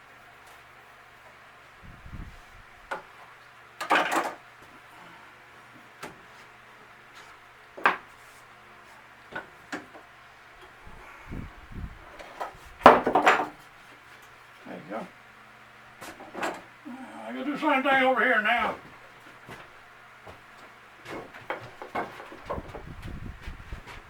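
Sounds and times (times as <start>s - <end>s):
wooden parts and tools clattering: 3.8s - 4.4s, 12.2s - 14.3s, 16.0s - 16.7s, 21.0s - 22.9s
dull thumps: 21.1s - 24.0s.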